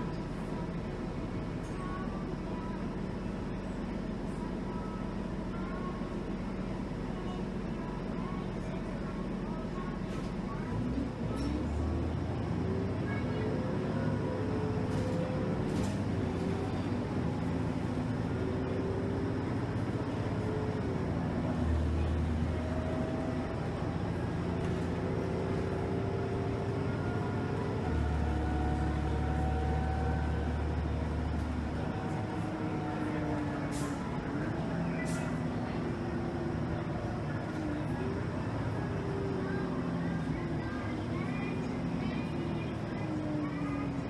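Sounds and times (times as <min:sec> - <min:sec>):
bus engine low rumble: 0:00.0 - 0:44.0
faint drivetrain whine: 0:00.0 - 0:44.0.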